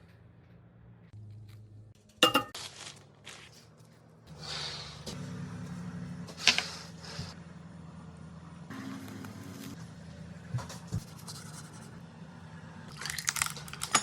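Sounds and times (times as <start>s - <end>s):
dish clinking: 2.2s - 2.6s.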